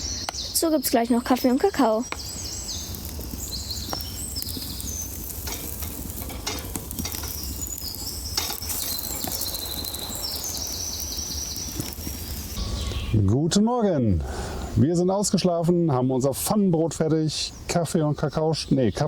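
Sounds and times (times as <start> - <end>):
bread sizzling in a pan: 0.0 - 12.6
birds chirping: 0.0 - 19.0
utensil clicking against pan: 5.3 - 10.0.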